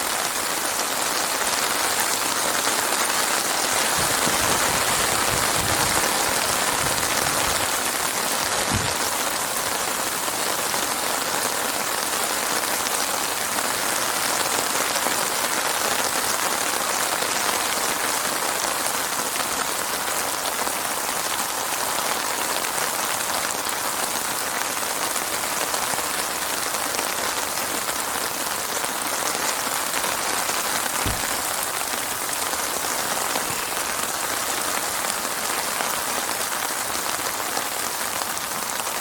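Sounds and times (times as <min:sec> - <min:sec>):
heavy rain falling: 0:00.0 - 0:39.0.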